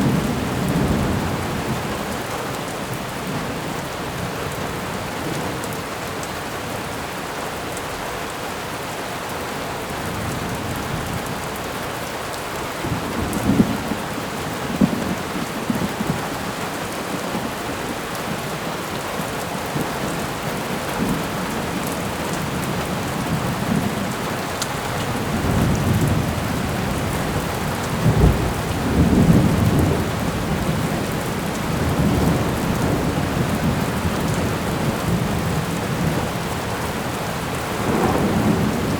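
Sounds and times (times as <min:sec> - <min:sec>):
steady rain: 0:00.0 - 0:38.9
thunder rumbling: 0:22.4 - 0:38.9.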